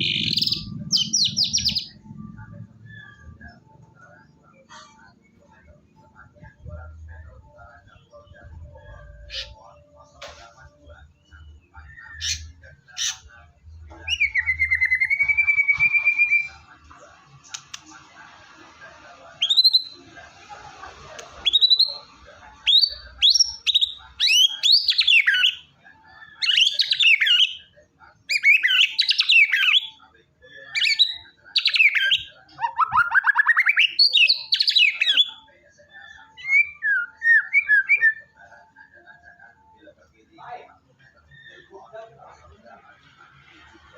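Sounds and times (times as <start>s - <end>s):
songbird whistling song: 14.0s - 16.6s, 36.4s - 38.3s.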